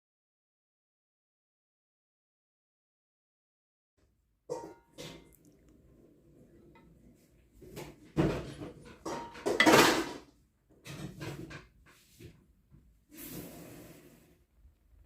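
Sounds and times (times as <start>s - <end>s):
hard objects clattering and scraping: 7.6s - 11.8s.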